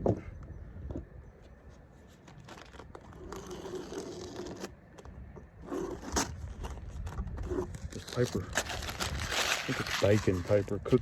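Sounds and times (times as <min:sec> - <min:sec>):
baking paper crinkling: 0:07.7 - 0:11.0.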